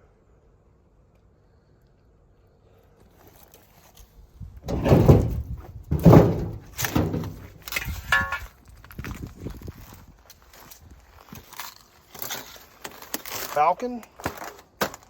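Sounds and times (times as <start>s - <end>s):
dull thunks on metal panel: 4.6s - 8.4s.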